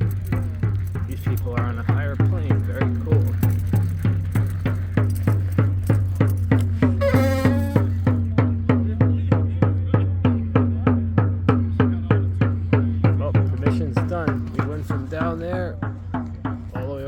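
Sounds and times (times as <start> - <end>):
hand drums playing: 0.0 - 8.9
held note: 6.8 - 8.2.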